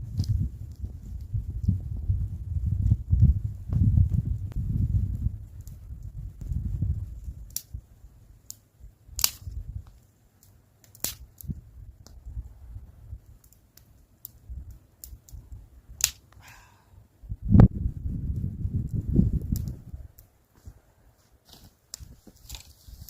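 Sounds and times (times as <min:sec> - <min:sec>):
sharp snaps and clicks: 0:07.4 - 0:07.8, 0:09.2 - 0:12.2, 0:13.4 - 0:15.4, 0:16.0 - 0:16.4.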